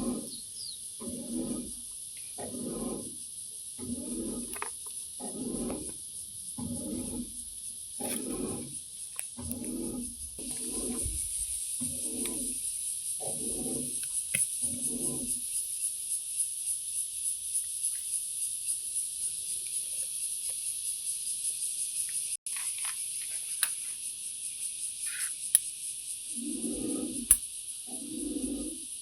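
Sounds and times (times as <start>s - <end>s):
dove cooing: 0.0s - 0.4s, 26.3s - 28.9s
insects trilling: 0.0s - 29.0s.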